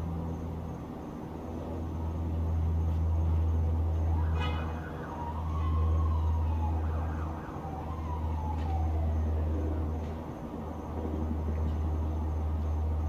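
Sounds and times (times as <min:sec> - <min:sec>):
low rumble of traffic: 0:00.0 - 0:13.0
distant siren wailing: 0:03.8 - 0:13.0.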